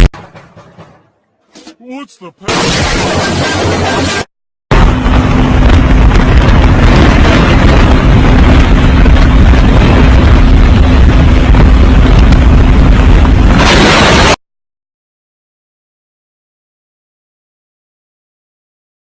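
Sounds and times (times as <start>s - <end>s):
strong wind roaring on microphone: 4.7s - 14.4s.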